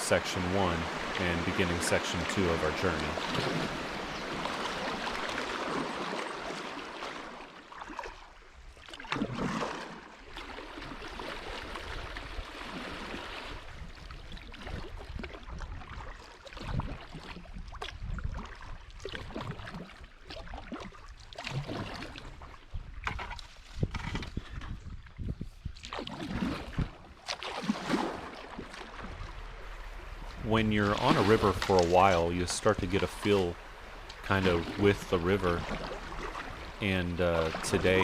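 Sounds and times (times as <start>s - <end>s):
moving water: 0.0s - 38.0s
paddle strokes splashing: 0.0s - 38.0s
low steady rumble: 28.2s - 38.0s.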